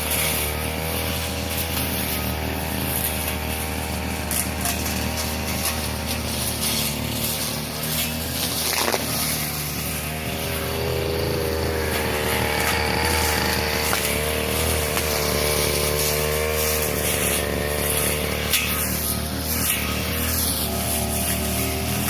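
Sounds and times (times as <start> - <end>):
brush cutter engine cutting grass: 0.0 - 22.0.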